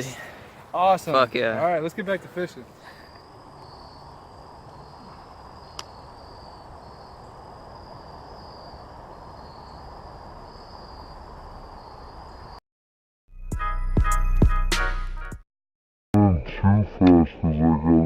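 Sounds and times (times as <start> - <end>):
crickets chirring: 0.7 - 12.6.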